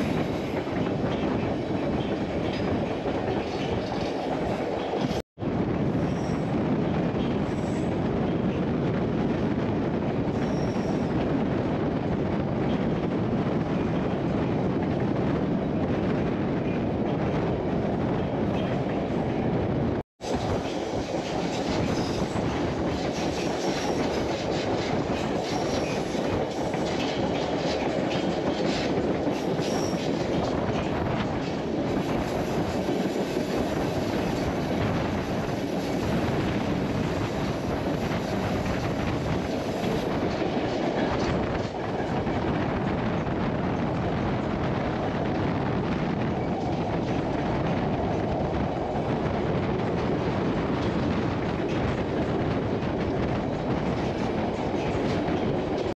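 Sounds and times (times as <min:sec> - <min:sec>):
wheels clickety-clack over rails: 0:00.0 - 0:05.2, 0:05.9 - 0:55.9
train cars rumbling: 0:00.0 - 0:55.9.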